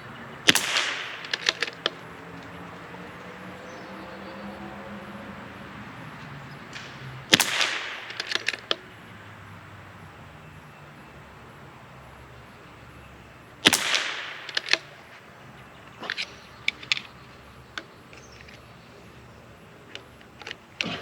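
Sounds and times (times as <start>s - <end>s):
rifle shots: 0.4s - 2.6s, 6.7s - 9.0s, 13.6s - 15.3s, 20.0s - 21.0s
rifle bolt clicks: 0.5s - 2.5s, 6.7s - 8.9s, 13.6s - 15.2s, 19.9s - 21.0s.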